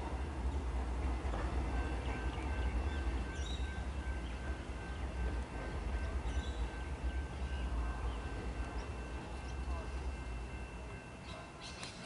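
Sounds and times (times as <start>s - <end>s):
electric train rumbling: 0.0s - 12.0s
birds chirping: 6.1s - 10.1s.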